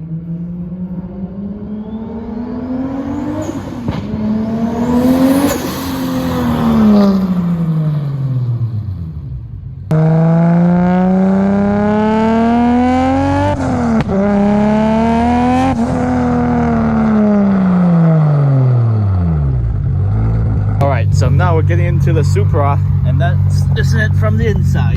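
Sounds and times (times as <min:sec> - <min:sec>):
car accelerating past: 0:00.0 - 0:09.2.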